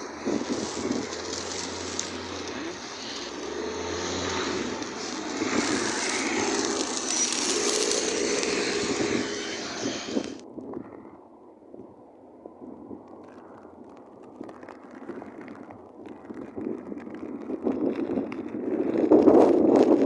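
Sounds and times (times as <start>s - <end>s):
rushing snowstorm wind: 0.0s - 10.9s.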